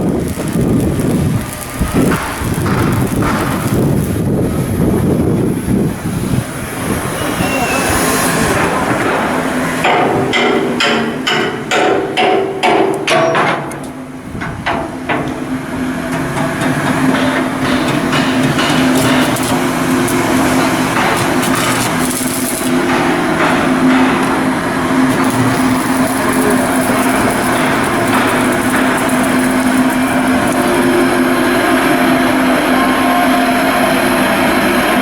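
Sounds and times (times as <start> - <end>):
machinery noise with low hum: 0.0 - 35.0
hammer striking steel: 7.3 - 15.5, 16.1 - 31.2.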